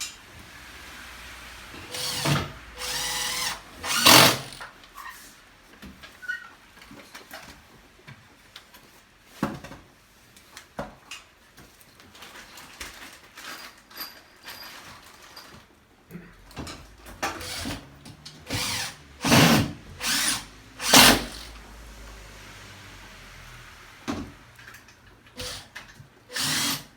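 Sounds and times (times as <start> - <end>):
power tool bursts: 1.0 - 4.7, 17.2 - 21.6, 25.4 - 26.9.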